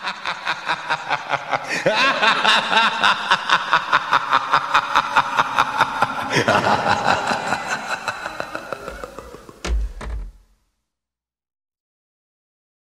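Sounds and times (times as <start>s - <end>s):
person laughing: 0.0s - 9.8s.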